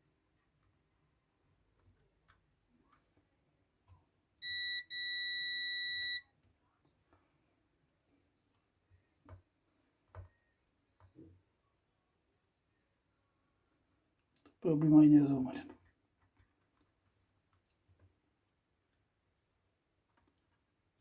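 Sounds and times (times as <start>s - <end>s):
multimeter continuity beeping: 4.4s - 6.2s.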